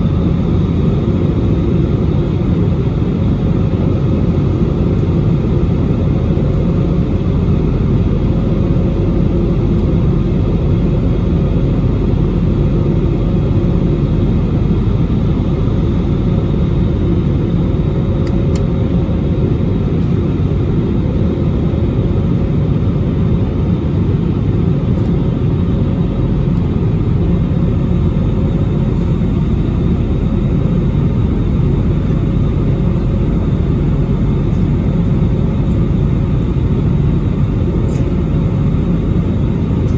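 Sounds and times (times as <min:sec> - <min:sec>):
jet engine roar in cabin: 0:00.0 - 0:39.9.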